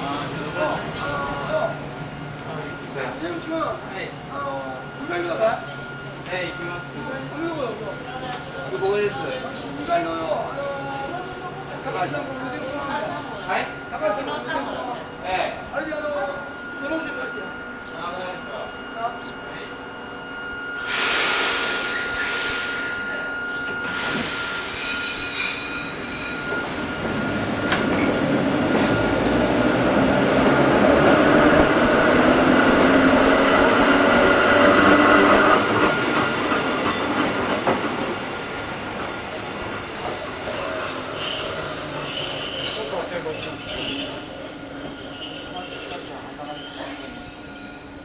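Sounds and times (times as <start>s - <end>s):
electric train running: 0.0s - 48.0s
wheel squeal: 20.2s - 28.2s, 40.4s - 48.0s
short hissing bursts: 20.9s - 22.8s.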